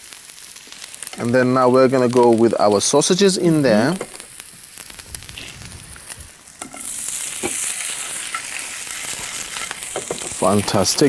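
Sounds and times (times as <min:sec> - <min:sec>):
sausages sizzling in frying pan: 0:00.0 - 0:11.0.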